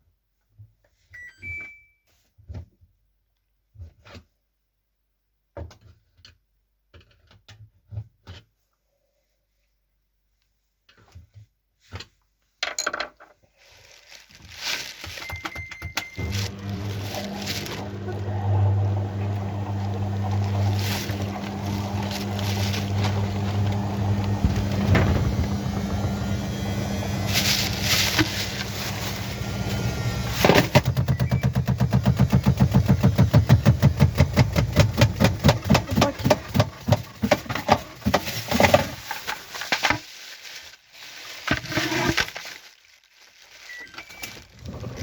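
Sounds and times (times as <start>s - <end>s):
washing machine motor hum: 15.5s - 39.0s.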